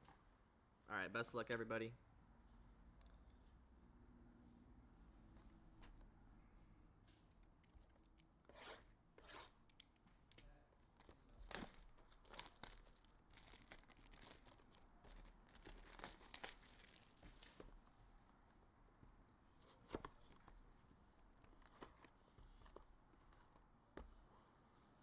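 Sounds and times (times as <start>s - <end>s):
card wrappers tearing and crinkling: 11.0s - 17.6s.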